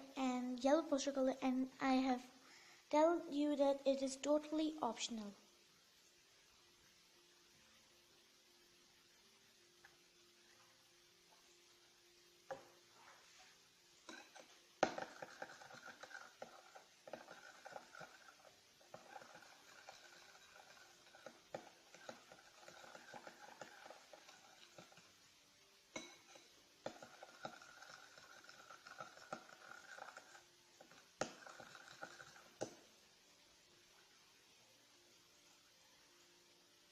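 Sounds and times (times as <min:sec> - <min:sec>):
utensil scraping a bowl: 0:14.1 - 0:25.1, 0:26.0 - 0:32.8.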